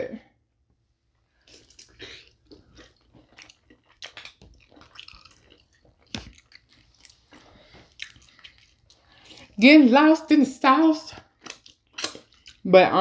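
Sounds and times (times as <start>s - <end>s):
people chewing and biting: 1.4s - 9.6s, 11.2s - 12.6s.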